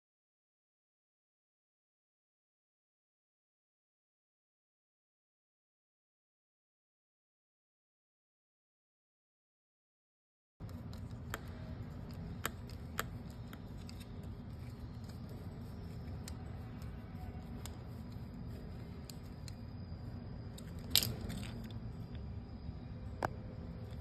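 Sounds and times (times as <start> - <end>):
small clicks and taps of parts: 10.6 - 18.2, 18.8 - 19.6, 20.5 - 22.2
steady low hum: 10.6 - 24.0.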